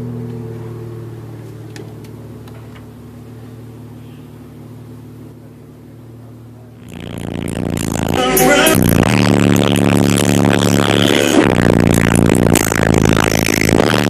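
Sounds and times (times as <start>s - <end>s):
steady low hum: 1.9s - 14.0s
distorted car stereo music: 6.8s - 14.0s.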